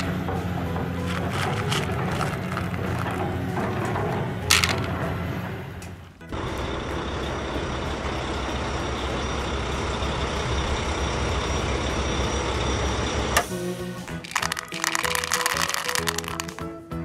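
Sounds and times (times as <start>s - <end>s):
truck engine rumbling: 0.0s - 13.4s.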